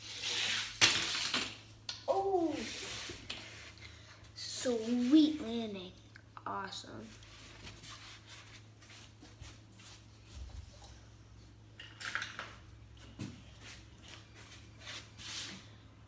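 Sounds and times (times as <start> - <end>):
toy cars clicking and scraping: 0.0 - 1.6.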